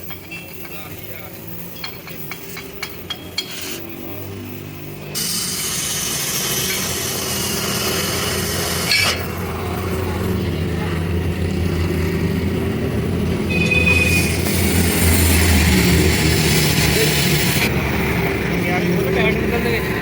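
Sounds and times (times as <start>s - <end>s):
metallic clink: 0.0s - 5.6s
workshop machinery hissing: 0.0s - 20.0s
high whine: 2.5s - 20.0s.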